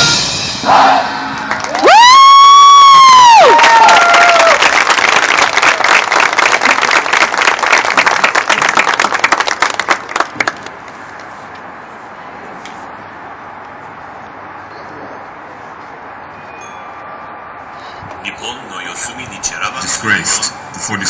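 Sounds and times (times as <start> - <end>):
crowd applause: 1.4 - 10.9.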